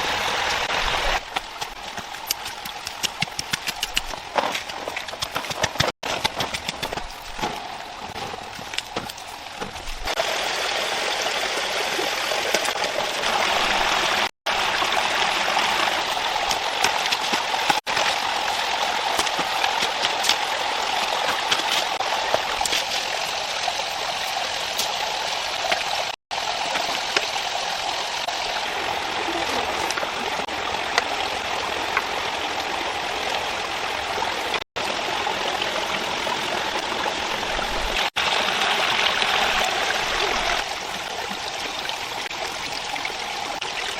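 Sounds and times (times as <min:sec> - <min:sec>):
rushing water: 0:00.0 - 0:43.9.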